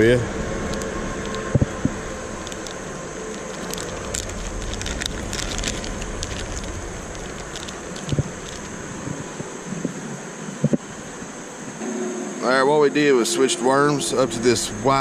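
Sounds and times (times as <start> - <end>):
outdoor hiss: 0.0 - 15.0
small plastic clicks and crackles: 0.6 - 10.0.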